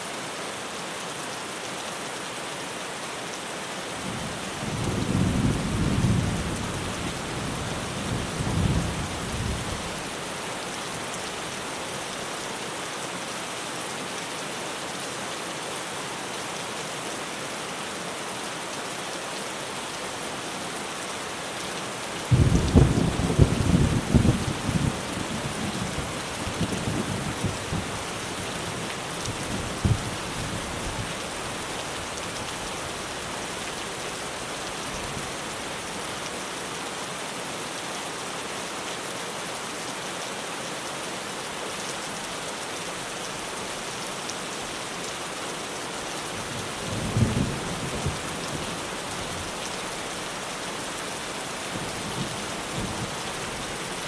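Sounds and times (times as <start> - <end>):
heavy rain on a tin roof: 0.0 - 54.0
thunder rumble: 22.3 - 25.1.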